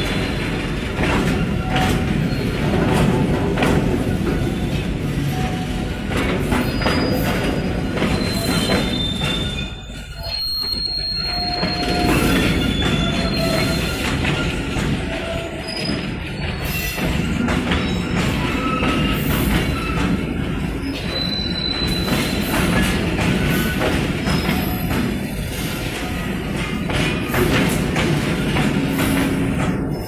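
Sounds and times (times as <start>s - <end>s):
train wheels rumbling on rails: 0.0s - 30.0s
high wheel squeals: 6.6s - 20.2s, 20.8s - 24.9s.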